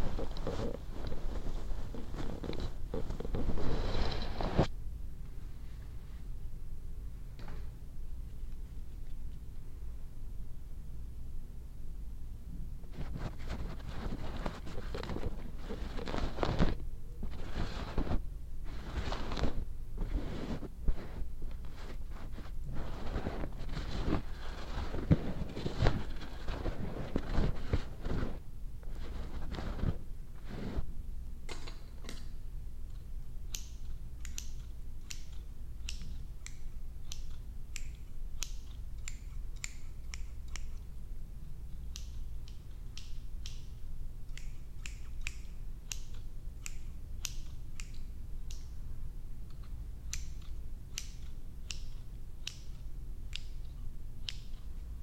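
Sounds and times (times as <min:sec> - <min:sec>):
rustling and rubbing: 0:00.0 - 0:04.7, 0:12.8 - 0:30.9
steady low hum: 0:00.0 - 0:55.0
scissors snipping hair: 0:33.5 - 0:41.0, 0:41.8 - 0:48.8, 0:49.5 - 0:54.9.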